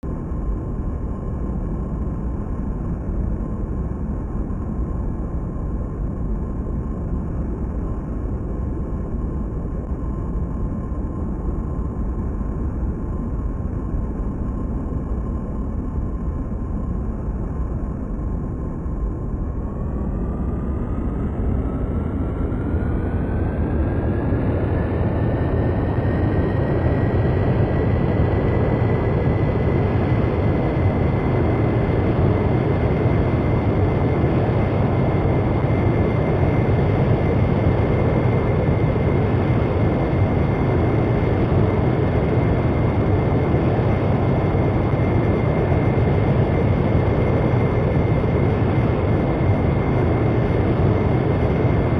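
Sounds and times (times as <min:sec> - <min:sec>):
jet engine whine rising: 0:13.4 - 0:51.9
jet engine roar: 0:17.0 - 0:51.9.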